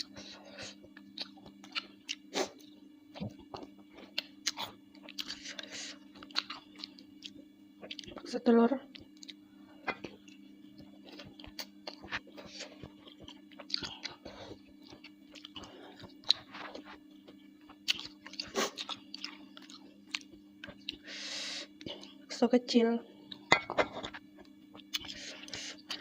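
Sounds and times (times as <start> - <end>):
steady low hum: 0.0 - 26.0
close-up chewing: 0.7 - 8.2, 8.9 - 9.4, 10.0 - 21.0, 23.3 - 26.0.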